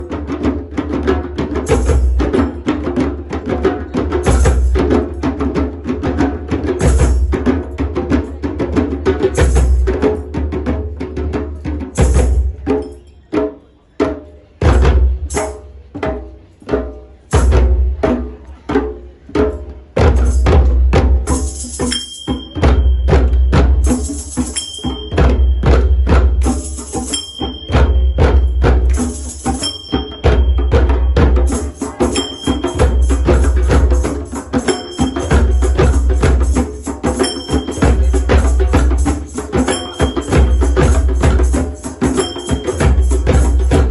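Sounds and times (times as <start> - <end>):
drum circle playing: 0.0 - 43.9
high steady tone: 24.4 - 33.8.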